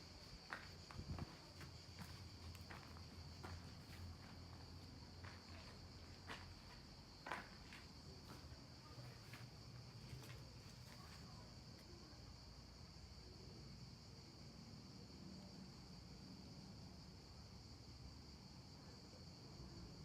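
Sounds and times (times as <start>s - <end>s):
insects droning: 0.0s - 20.0s
footsteps: 0.2s - 11.3s.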